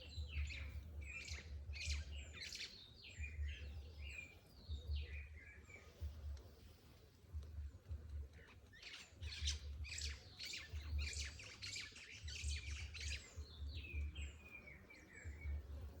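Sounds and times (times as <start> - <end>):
songbird singing: 8.3 - 16.0.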